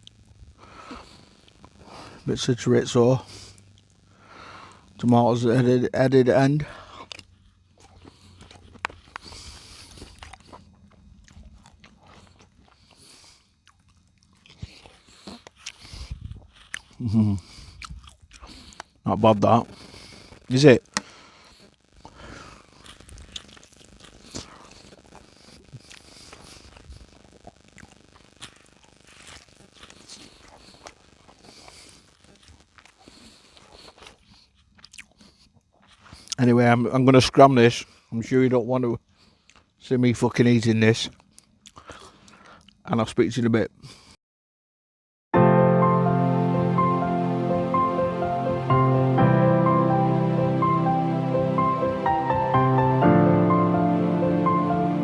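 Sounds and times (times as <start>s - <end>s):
person chewing food: 6.7s - 19.0s, 19.7s - 36.4s, 39.1s - 39.8s, 41.1s - 42.8s.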